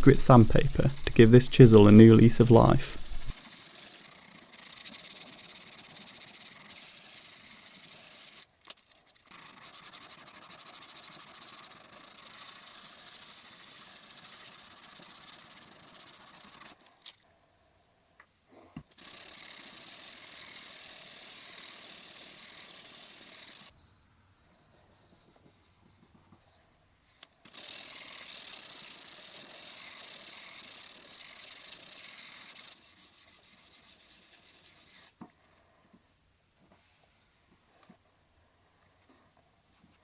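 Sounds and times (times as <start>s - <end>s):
sandpaper rubbing on steel: 32.1s - 35.1s.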